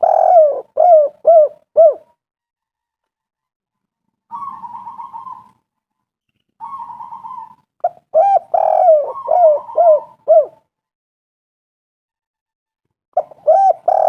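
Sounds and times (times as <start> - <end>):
dove cooing: 0.0 - 2.1, 4.3 - 5.6, 6.6 - 10.7, 13.2 - 14.0
dove purring trills: 0.0 - 2.1, 4.3 - 5.6, 6.6 - 10.6, 13.2 - 14.0.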